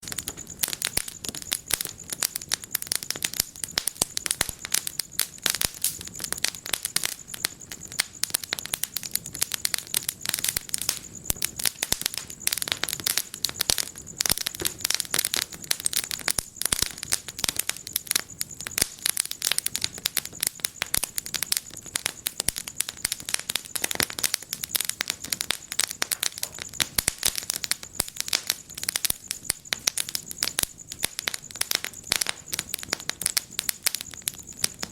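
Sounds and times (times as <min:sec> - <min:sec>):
wood fire crackling: 0:00.0 - 0:34.9.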